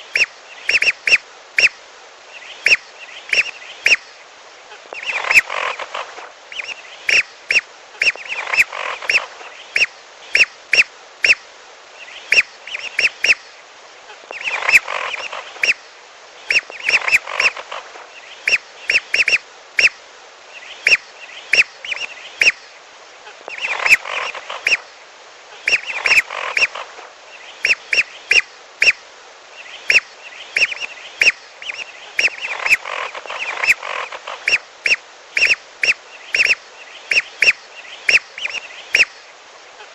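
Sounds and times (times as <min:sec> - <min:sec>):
whistling duck calls: 0:00.1 - 0:01.8, 0:06.5 - 0:11.4, 0:18.4 - 0:20.0, 0:23.5 - 0:24.8, 0:25.7 - 0:26.8, 0:27.6 - 0:29.0, 0:29.8 - 0:39.2.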